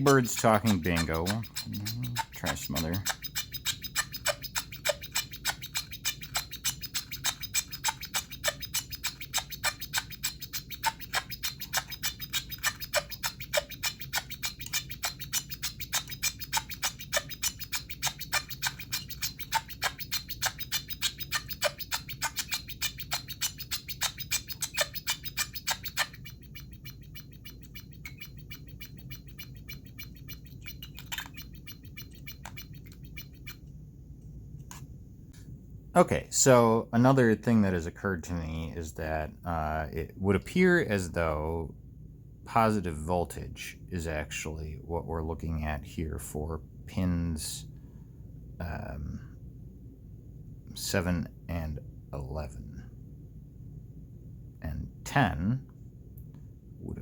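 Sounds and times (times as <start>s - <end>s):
glitching buzzy clicks: 0.0s - 33.7s
faint hum: 0.0s - 57.0s.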